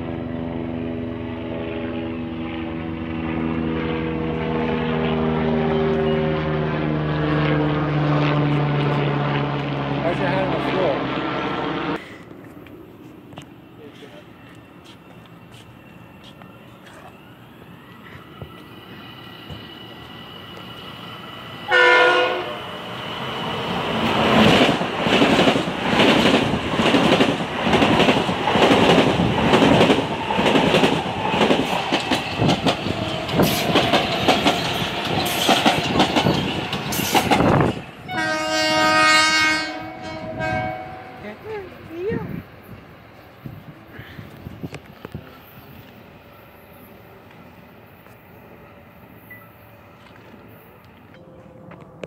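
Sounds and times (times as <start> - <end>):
train cars rushing by: 3.6 - 52.0
train horn blast: 21.7 - 22.9, 38.0 - 41.4
wheels clattering over rail joints: 24.4 - 38.0.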